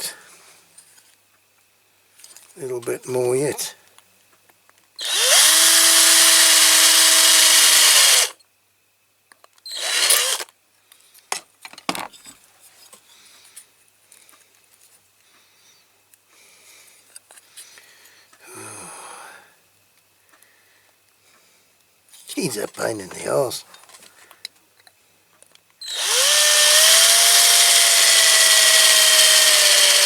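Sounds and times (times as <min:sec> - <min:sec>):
power drill drilling into metal: 0:05.0 - 0:08.4, 0:09.7 - 0:10.5, 0:25.8 - 0:30.0.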